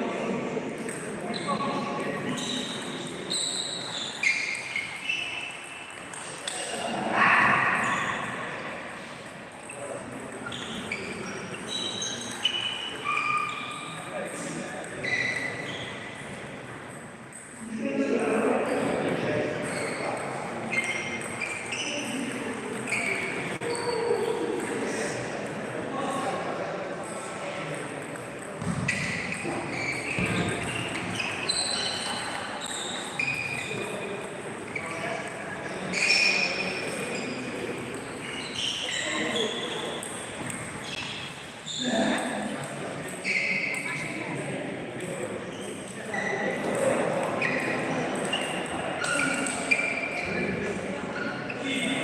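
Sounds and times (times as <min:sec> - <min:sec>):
table tennis hall background noise: 0:00.0 - 0:52.0
voices chattering: 0:00.0 - 0:52.0
high squeaks: 0:01.3 - 0:06.6, 0:28.6 - 0:34.0, 0:34.7 - 0:42.2, 0:45.5 - 0:50.4
ping-pong balls clicking: 0:04.5 - 0:06.7, 0:19.1 - 0:23.6, 0:27.6 - 0:41.1.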